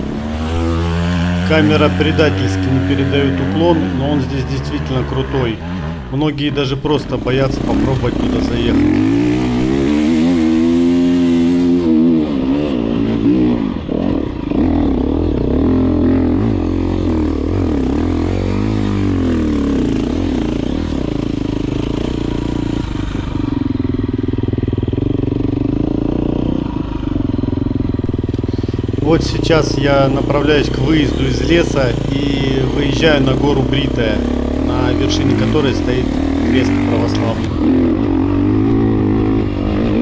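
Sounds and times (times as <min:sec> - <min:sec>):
dirt bike engine revving: 0:00.0 - 0:22.7, 0:28.0 - 0:40.0.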